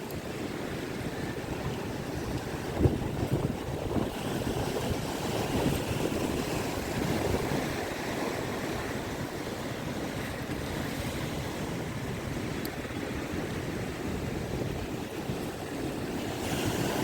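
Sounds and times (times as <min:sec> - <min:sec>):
surf washing in: 0:00.0 - 0:17.0
wind buffeting microphone: 0:00.0 - 0:17.0.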